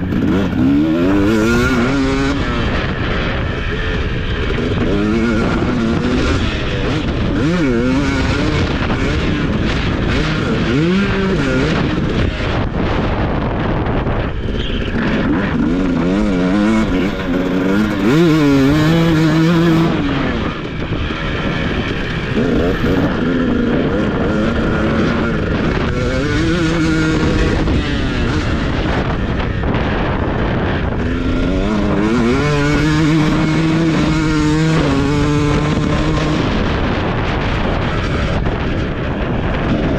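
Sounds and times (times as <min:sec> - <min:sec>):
motocross bike engine revving: 0:00.0 - 0:39.9
steady rush of noise: 0:00.0 - 0:39.9.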